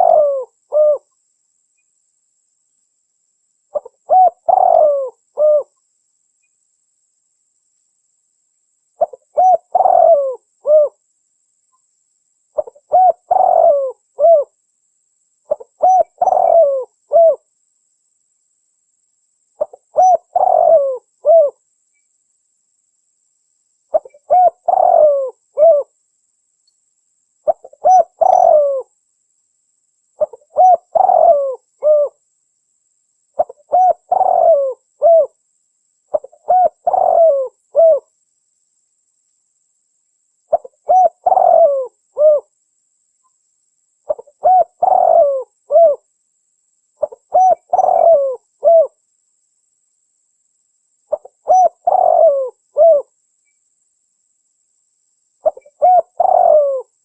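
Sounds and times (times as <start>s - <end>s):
dove cooing: 0.0s - 1.1s, 3.7s - 5.7s, 9.0s - 11.0s, 12.6s - 14.6s, 15.5s - 17.5s, 19.6s - 21.6s, 23.9s - 25.9s, 27.5s - 28.9s, 30.2s - 32.2s, 33.4s - 35.4s, 36.1s - 38.1s, 40.5s - 42.5s, 44.1s - 46.0s, 47.0s - 49.0s, 51.1s - 53.1s, 55.4s - 56.9s.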